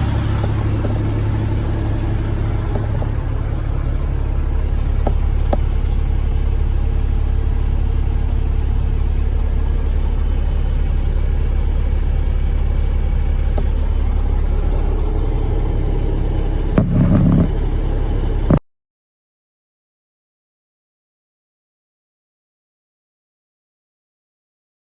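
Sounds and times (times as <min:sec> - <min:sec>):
diesel truck engine idling: 0:00.0 - 0:18.6.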